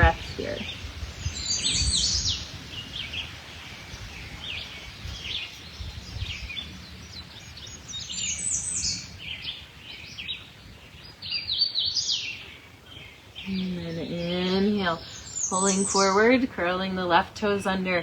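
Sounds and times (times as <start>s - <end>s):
low background noise: 0.0s - 18.0s
songbirds chirping: 0.0s - 18.0s.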